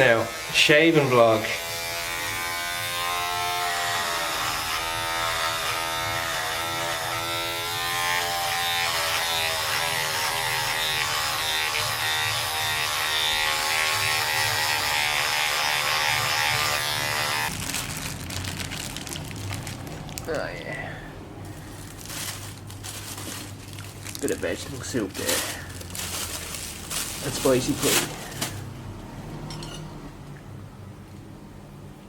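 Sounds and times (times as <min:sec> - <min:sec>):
electric shaver buzzing: 0:00.0 - 0:17.6.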